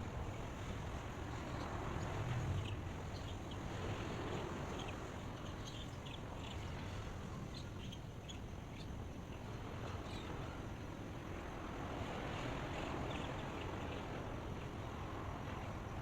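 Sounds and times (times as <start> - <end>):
rush of wind or water: 0.0 - 16.0
small birds chirping: 1.3 - 9.4.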